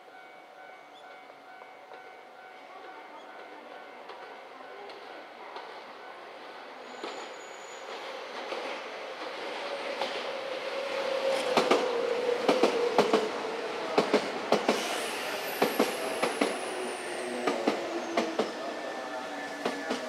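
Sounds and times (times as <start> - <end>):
steady train tone: 0.0 - 20.0
train wheels clacking: 6.9 - 20.0.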